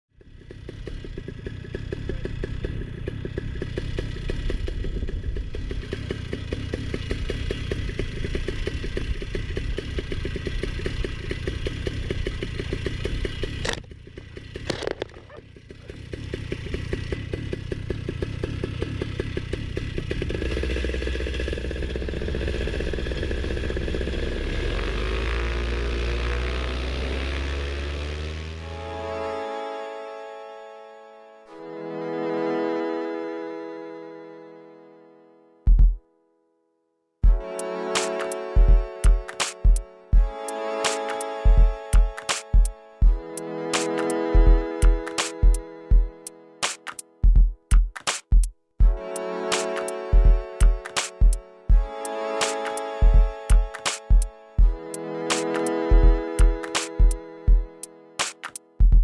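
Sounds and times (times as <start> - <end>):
paramotor engine running: 0.1 - 30.0, 43.0 - 46.4, 48.8 - 58.0.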